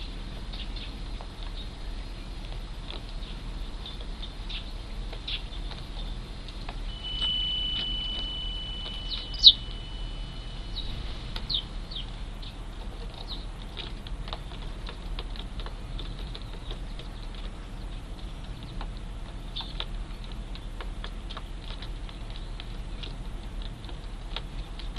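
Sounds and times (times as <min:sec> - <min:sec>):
sparrows chirping: 0:00.0 - 0:24.9
thin high tone: 0:06.9 - 0:11.4.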